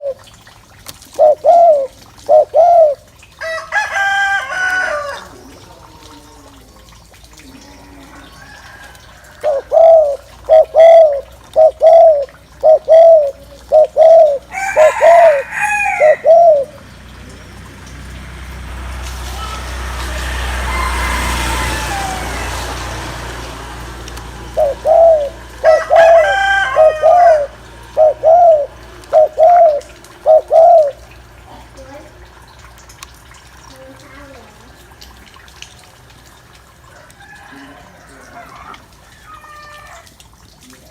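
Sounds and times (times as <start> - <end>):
dove cooing: 0.0 - 0.3, 1.1 - 3.2, 9.2 - 16.9, 24.3 - 31.7
rooster crowing: 3.4 - 5.4, 8.0 - 9.8, 14.5 - 16.4, 20.0 - 23.1, 25.6 - 27.6, 36.9 - 40.2
passing engine: 8.1 - 33.6.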